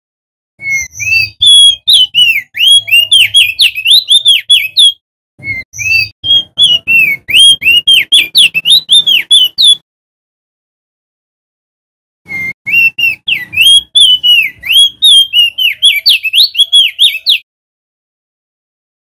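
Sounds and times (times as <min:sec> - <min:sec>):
bird singing whistled notes: 0:00.6 - 0:09.8, 0:12.3 - 0:17.5.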